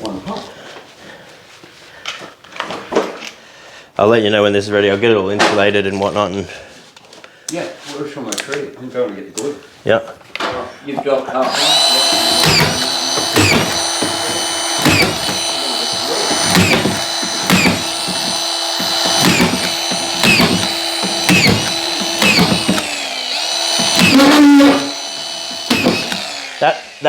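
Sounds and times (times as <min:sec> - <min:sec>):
power screwdriver whining: 0:11.4 - 0:27.0
screwdriver bit clicking: 0:11.5 - 0:26.6.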